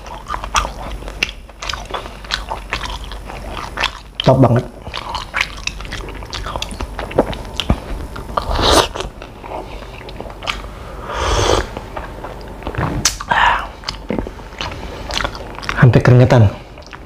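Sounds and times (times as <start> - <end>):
chewing crispy food: 0.0 - 10.7, 11.7 - 17.0
slurping sauce: 8.4 - 9.7, 11.0 - 11.8.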